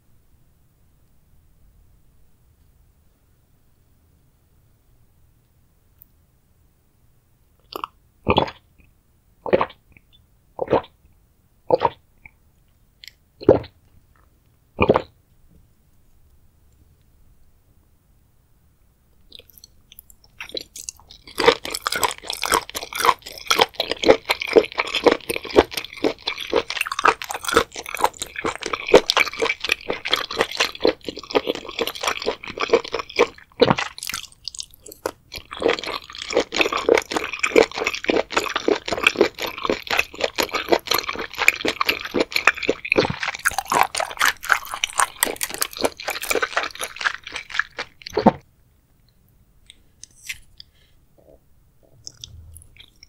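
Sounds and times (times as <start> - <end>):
wet crunching chewing: 19.3 - 48.4, 49.7 - 53.0.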